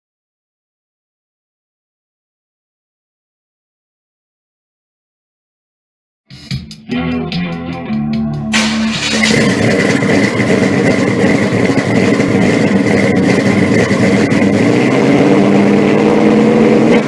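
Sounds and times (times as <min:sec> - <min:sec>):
car engine running: 0:08.5 - 0:17.0.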